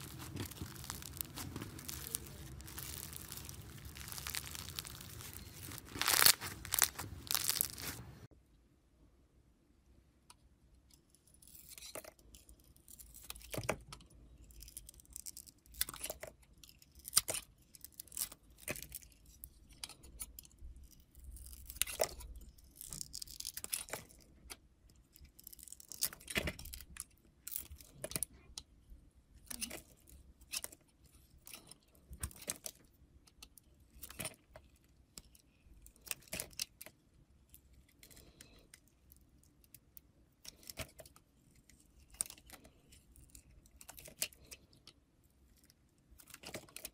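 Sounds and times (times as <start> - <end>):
slime squeezed crunching: 0.0 - 8.3.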